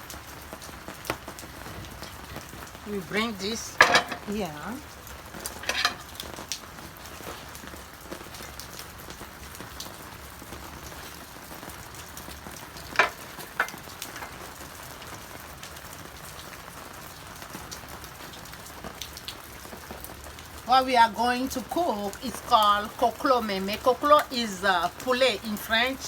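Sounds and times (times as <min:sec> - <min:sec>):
onion sizzling in oil: 0:00.0 - 0:19.6, 0:20.2 - 0:26.0
utensils knocking: 0:03.4 - 0:04.5, 0:05.6 - 0:06.1, 0:13.0 - 0:14.4.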